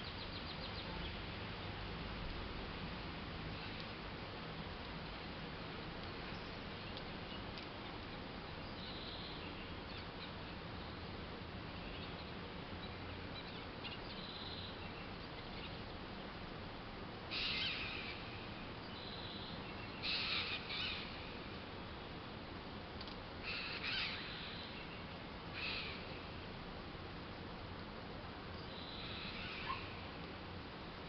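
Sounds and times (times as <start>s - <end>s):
city background hiss: 0.0s - 31.0s
harsh scratchy bird calls: 17.3s - 18.2s, 20.0s - 21.1s, 23.5s - 24.7s.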